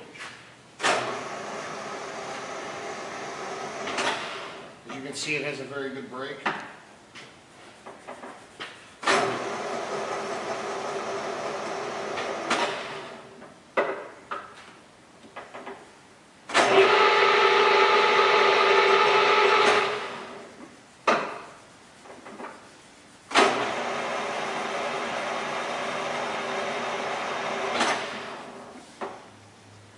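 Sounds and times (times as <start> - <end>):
lathe spindle running: 16.6 - 20.2, 23.5 - 28.7.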